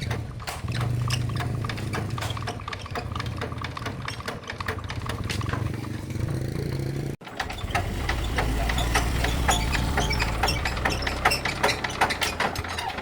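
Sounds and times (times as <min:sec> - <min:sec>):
tractor engine idling: 0:00.0 - 0:13.0
quick engine ticks: 0:07.2 - 0:13.0.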